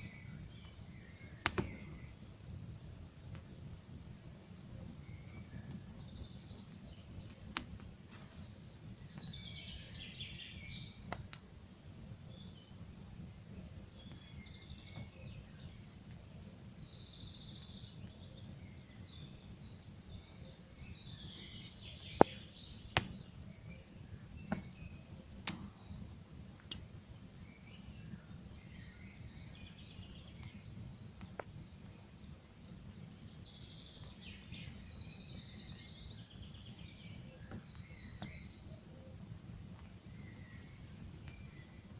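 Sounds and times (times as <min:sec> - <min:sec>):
songbirds trilling: 0:00.0 - 0:03.0, 0:03.6 - 0:41.9
campfire crackling: 0:00.2 - 0:09.3, 0:10.8 - 0:16.8
fire popping: 0:00.2 - 0:09.3, 0:10.6 - 0:16.7, 0:21.8 - 0:28.1, 0:37.4 - 0:40.3.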